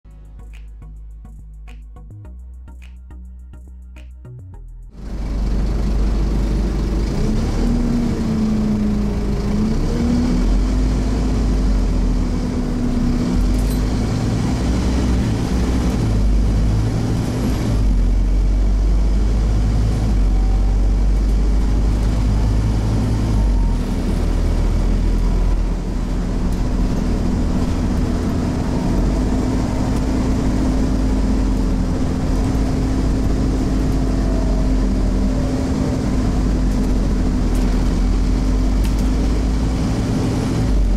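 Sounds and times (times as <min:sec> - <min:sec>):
bus diesel engine rumbling: 0:00.0 - 0:40.9.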